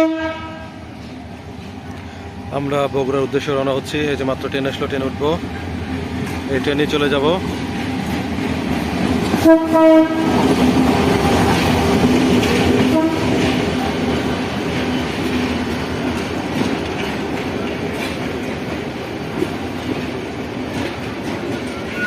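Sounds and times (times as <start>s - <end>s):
train horn: 0.0s - 0.9s, 9.4s - 10.6s, 12.8s - 13.6s, 21.7s - 22.0s
train wheels rumbling: 0.0s - 22.0s.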